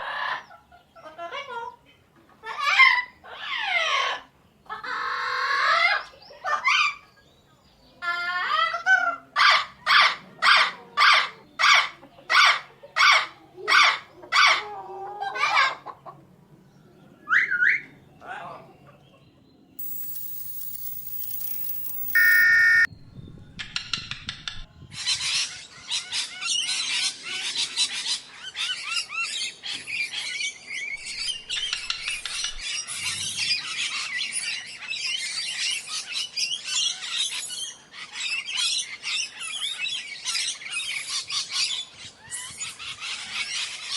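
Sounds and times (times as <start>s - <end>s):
loud steady tone: 19.8s - 22.9s.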